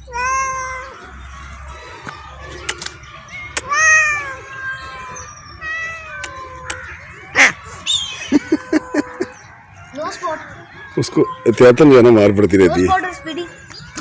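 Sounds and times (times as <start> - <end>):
cats meowing and wailing: 0.0 - 14.0
sharp clicks: 2.6 - 3.7.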